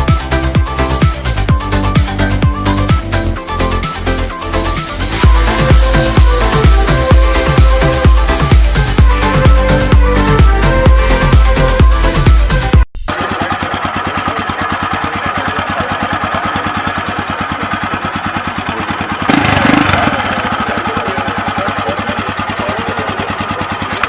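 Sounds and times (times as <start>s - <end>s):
electronic music: 0.0s - 13.1s
engine revving: 0.0s - 24.0s
motorcycle engine idling: 0.0s - 24.0s.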